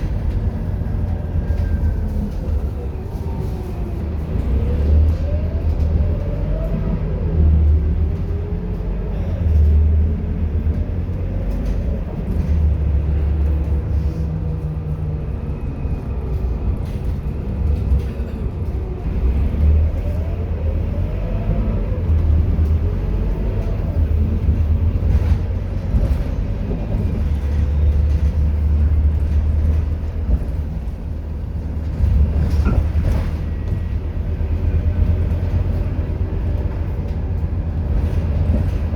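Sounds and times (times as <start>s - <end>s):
bus diesel engine rumble: 0.0s - 38.9s.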